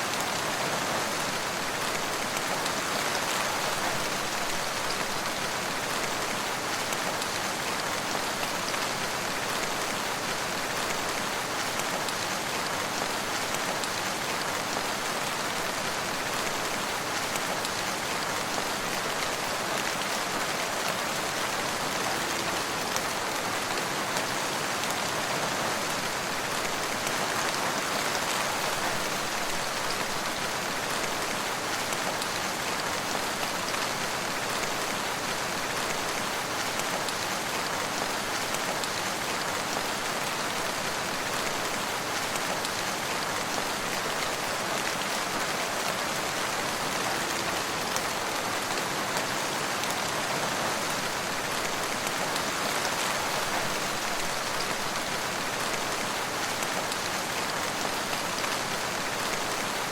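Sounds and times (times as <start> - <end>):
rain pattering: 0.0 - 59.9.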